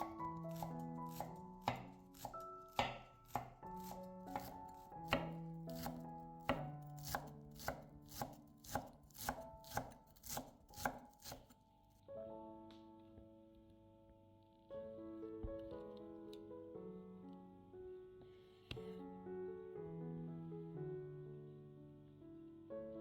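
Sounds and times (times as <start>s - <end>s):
knife chopping on cutting board: 0.0s - 11.6s
soft background music: 0.0s - 23.0s.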